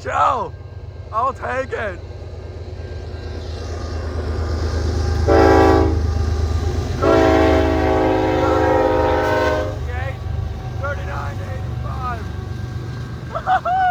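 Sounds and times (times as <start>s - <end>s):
train rumbling: 0.0s - 13.9s
train air horn blasts: 5.2s - 6.1s, 7.0s - 10.0s.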